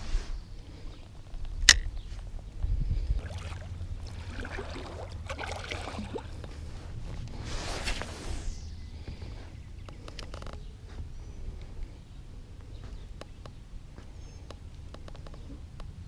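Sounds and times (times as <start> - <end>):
fishing gear click: 1.3 - 2.0
gear clicks and rustles: 9.9 - 10.7, 14.4 - 16.0.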